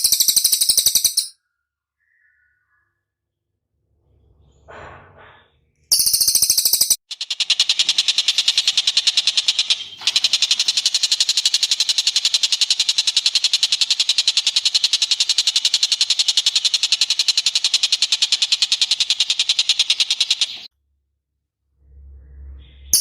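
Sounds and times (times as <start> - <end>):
bird trilling: 0.0 - 1.3, 5.9 - 20.7.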